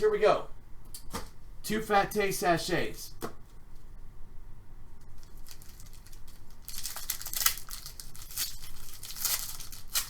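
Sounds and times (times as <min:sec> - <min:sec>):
wrapper tearing and crinkling: 0:05.2 - 0:10.0.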